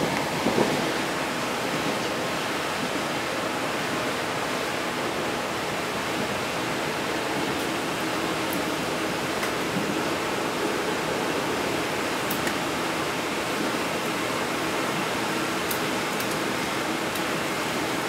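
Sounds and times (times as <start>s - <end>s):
train carriage rumbling on track: 0.0s - 18.0s.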